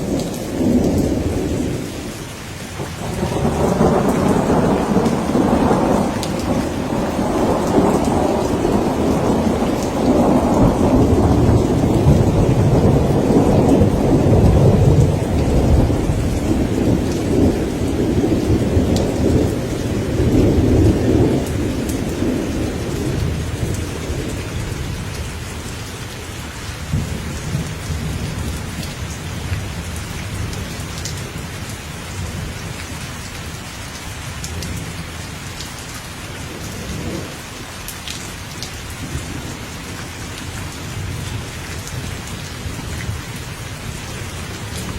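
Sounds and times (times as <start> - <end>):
rolling thunder rumble: 0.0 - 2.2, 2.8 - 25.7, 36.4 - 37.4
steady rain falling: 0.0 - 44.9.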